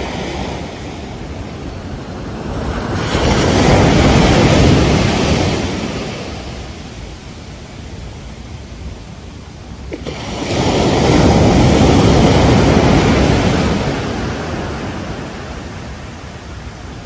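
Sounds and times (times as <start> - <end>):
ocean wave breaking on beach: 0.0 - 8.1, 9.8 - 17.0.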